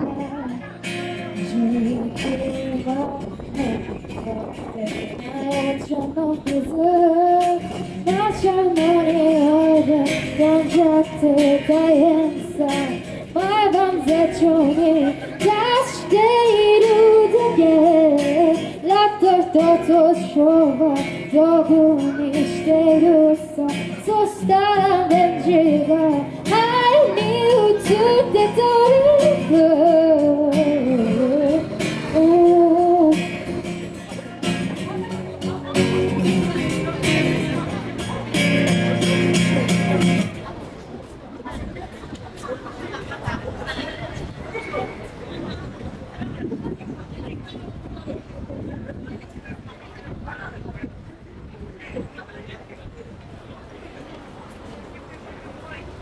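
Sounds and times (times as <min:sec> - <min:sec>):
woman singing: 0:00.0 - 0:33.8.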